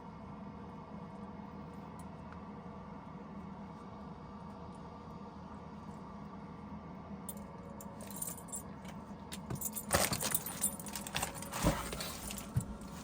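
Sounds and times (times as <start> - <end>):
small metal objects jingling: 9.4 - 11.5.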